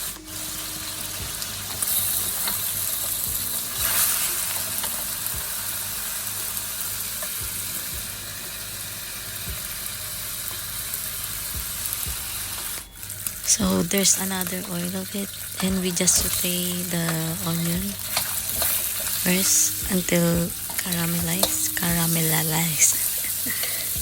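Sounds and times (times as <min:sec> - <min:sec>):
food sizzling in hot oil: 0:00.0 - 0:24.0
stirring clicks: 0:15.6 - 0:24.0.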